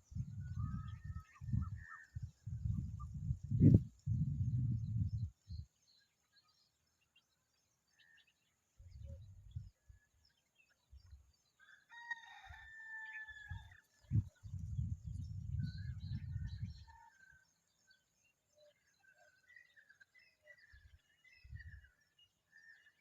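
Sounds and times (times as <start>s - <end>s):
rooster crowing: 11.6s - 13.8s
small birds chirping: 13.5s - 23.0s.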